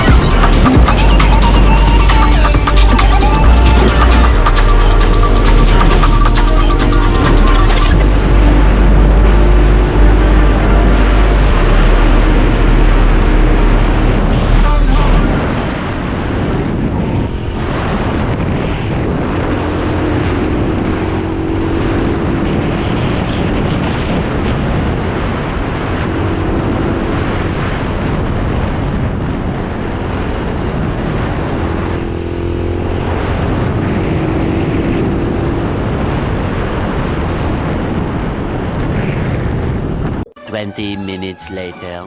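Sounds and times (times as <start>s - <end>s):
pit bike engine running: 0.0s - 14.8s
loud rushing noise: 0.0s - 20.1s.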